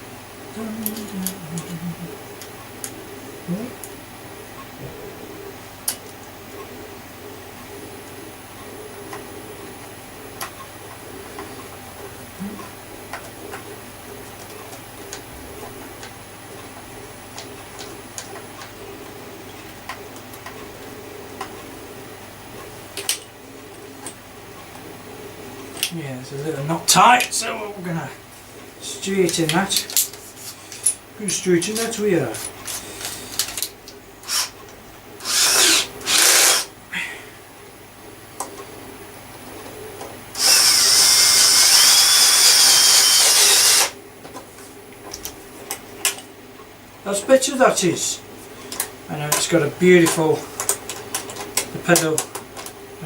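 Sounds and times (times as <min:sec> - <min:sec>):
steady low hum: 0:00.0 - 0:53.0
electric motor whining: 0:34.2 - 0:34.6, 0:35.2 - 0:36.7, 0:40.4 - 0:44.0.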